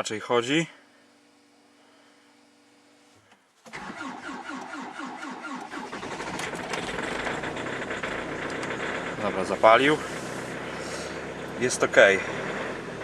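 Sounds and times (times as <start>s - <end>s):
diesel engine running: 3.7s - 13.0s
fuel pump humming: 3.7s - 13.0s
starter cranking engine: 3.7s - 13.0s.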